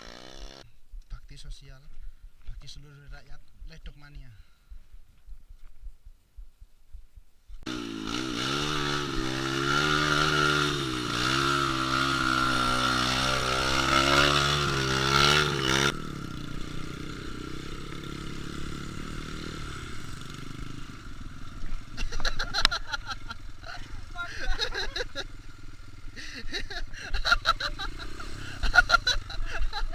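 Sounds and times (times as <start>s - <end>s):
motorcycle engine revving: 0.0s - 0.6s, 7.6s - 29.9s
rough quiet engine: 0.0s - 0.7s, 7.6s - 29.9s.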